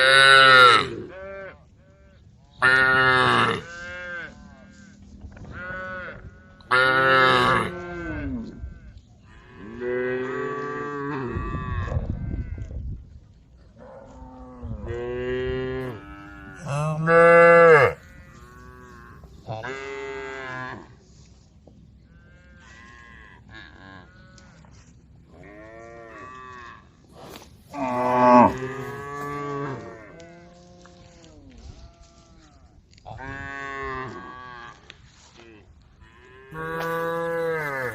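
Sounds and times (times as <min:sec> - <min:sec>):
cows mooing: 0:14.2 - 0:20.9, 0:27.7 - 0:31.0, 0:36.4 - 0:37.9.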